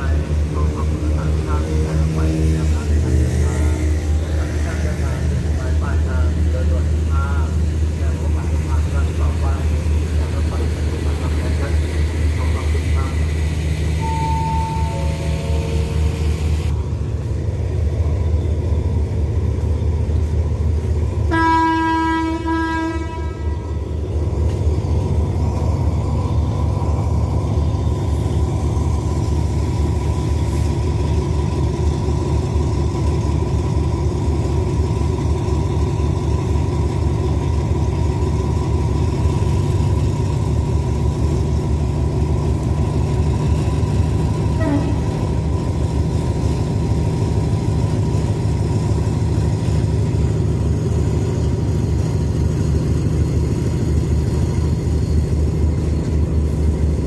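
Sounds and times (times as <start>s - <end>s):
train diesel engine idling: 0.0s - 57.0s
train horn: 21.3s - 23.8s, 44.5s - 45.2s.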